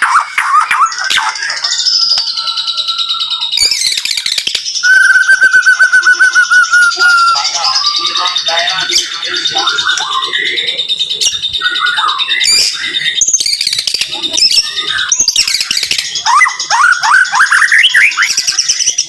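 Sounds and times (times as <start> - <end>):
bird singing whistles and trills: 0.0 - 19.0.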